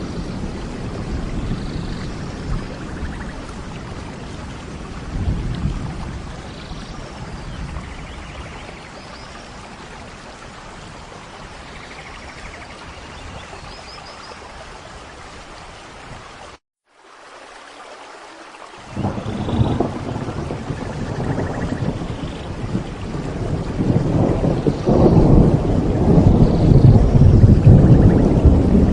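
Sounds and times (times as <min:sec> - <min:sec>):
rolls of thunder: 0:00.0 - 0:09.0, 0:18.8 - 0:28.9
steady rain: 0:00.0 - 0:28.9.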